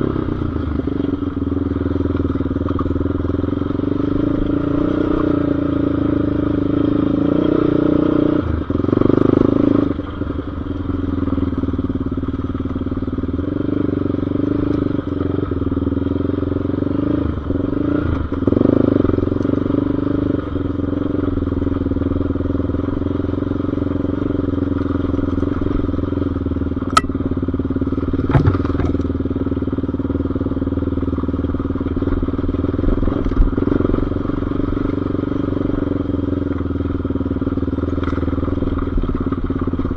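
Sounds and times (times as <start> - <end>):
off-road engine running and revving: 0.0 - 39.9
sharp knocks: 28.2 - 29.0.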